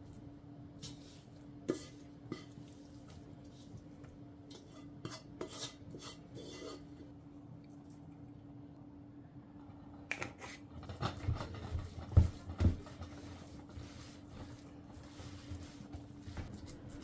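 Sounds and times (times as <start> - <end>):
faint steady hum: 0.0 - 17.0
kitchen knocks and clatters: 10.1 - 13.4.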